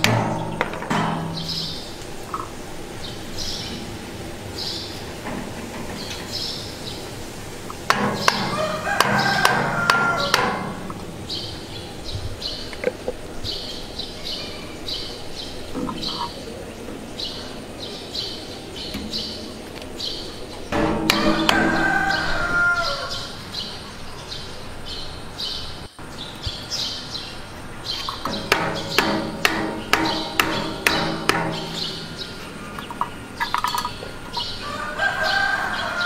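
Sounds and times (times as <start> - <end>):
bird chirping: 0.0 - 36.0
hammer tapping plastic pipe: 28.2 - 31.9.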